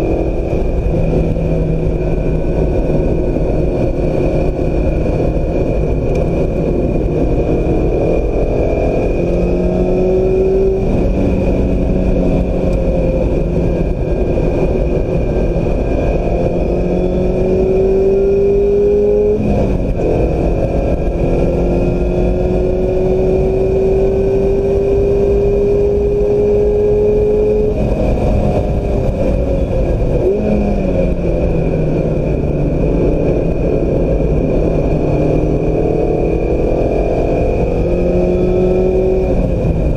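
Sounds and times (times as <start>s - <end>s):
car engine accelerating hard: 0.0s - 39.9s
engine blipping on downshifts: 0.0s - 39.9s
road and wind noise: 0.0s - 39.9s.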